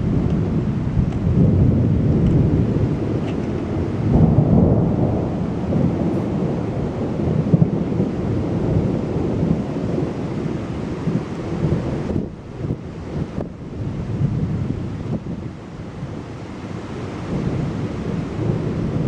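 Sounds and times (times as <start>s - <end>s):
rain falling: 0.0s - 19.0s
thunder rumbling: 0.0s - 19.0s.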